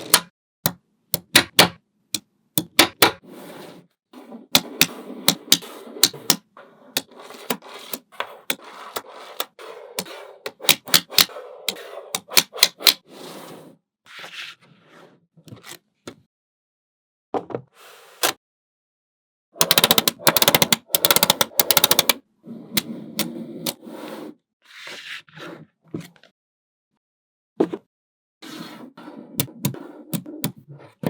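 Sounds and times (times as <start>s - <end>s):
magnetic balls clicking together: 19.6s - 22.2s.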